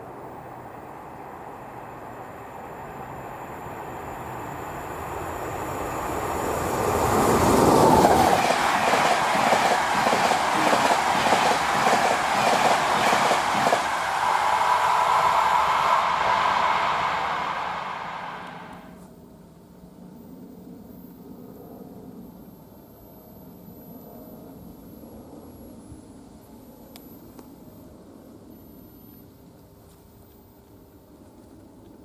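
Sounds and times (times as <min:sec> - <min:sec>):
train passing: 0:00.0 - 0:19.0
rhythmic wheel clatter on rails: 0:04.3 - 0:18.9.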